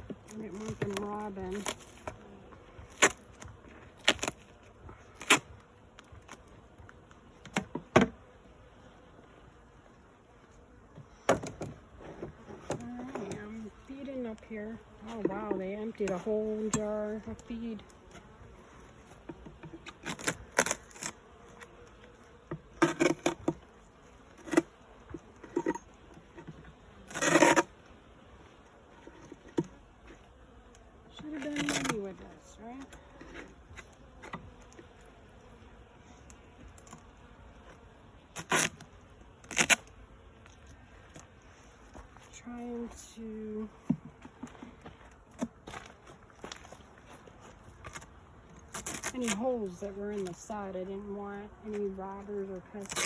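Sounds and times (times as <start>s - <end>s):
beehive parts knocking: 0.0s - 8.2s, 10.9s - 18.4s, 19.1s - 21.0s, 42.7s - 50.6s
bees buzzing: 0.0s - 53.0s
hive equipment knocking: 43.8s - 45.8s.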